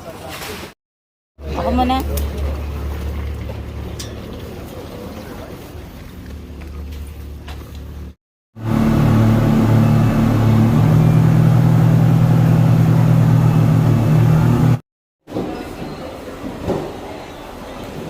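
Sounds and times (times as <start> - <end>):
engine droning: 1.4 - 14.8
low rumble: 8.6 - 14.8.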